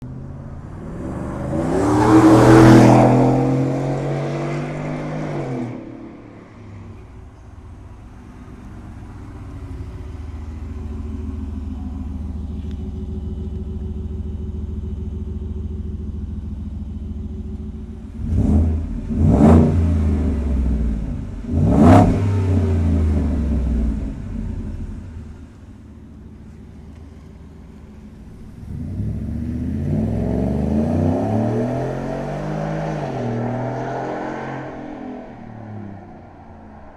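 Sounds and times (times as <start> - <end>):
truck exhaust revving and idling: 6.8 - 35.7.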